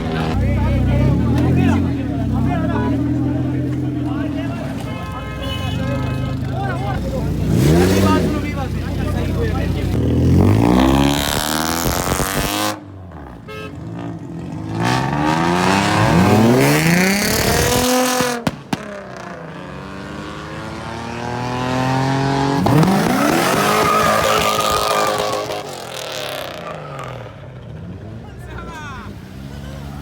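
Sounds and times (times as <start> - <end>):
car engines revving: 0.0 - 30.0
sharp cracks: 17.3 - 19.2.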